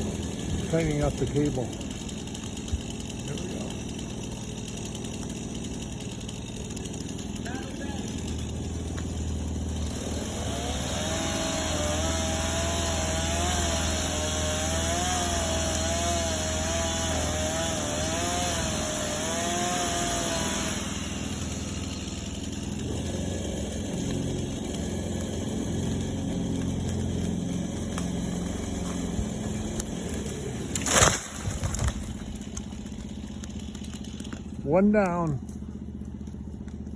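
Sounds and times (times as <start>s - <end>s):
chainsaw cutting tree trunk: 0.0s - 36.9s
low engine idle: 32.0s - 36.9s.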